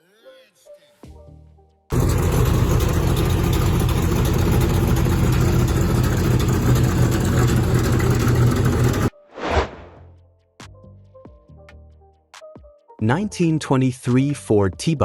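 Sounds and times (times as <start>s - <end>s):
car engine running: 1.9s - 9.1s.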